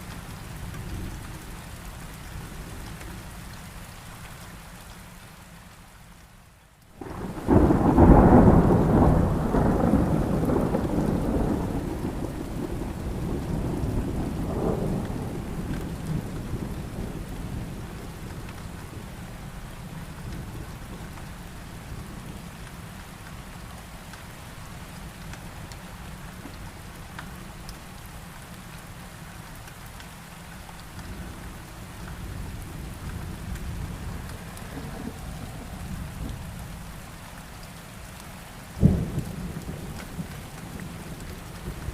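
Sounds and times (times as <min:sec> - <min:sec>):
heavy rain falling: 0:00.0 - 0:41.9
thunderclap rumbling: 0:07.0 - 0:19.1, 0:31.2 - 0:37.0, 0:38.8 - 0:41.9.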